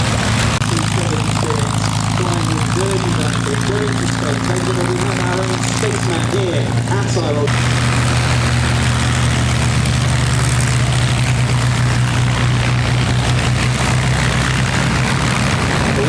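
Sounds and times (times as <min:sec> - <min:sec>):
propeller aircraft engine humming: 0:00.0 - 0:16.0.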